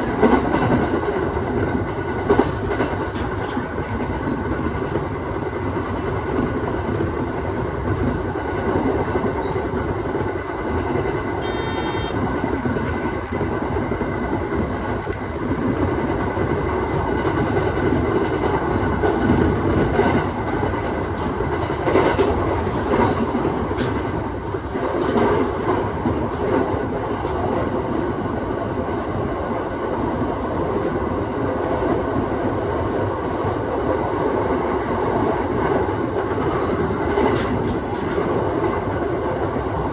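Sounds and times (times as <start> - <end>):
train wheels rumbling on rail: 0.0 - 39.9
brief high-pitched tone: 11.4 - 12.2.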